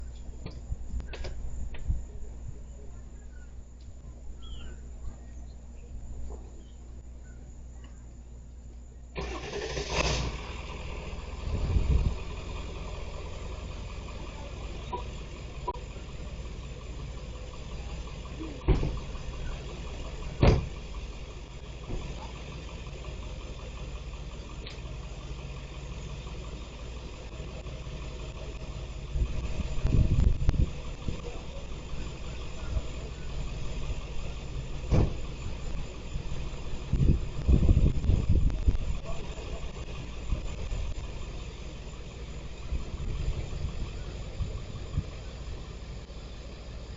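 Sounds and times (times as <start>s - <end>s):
vehicle engine idling: 0.0s - 46.9s
sharp knocks or thuds: 20.4s - 20.7s, 34.9s - 35.2s.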